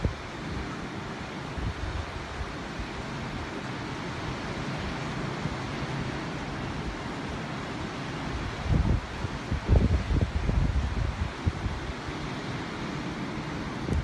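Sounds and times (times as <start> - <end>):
ocean surf washing onto beach: 0.0 - 14.0.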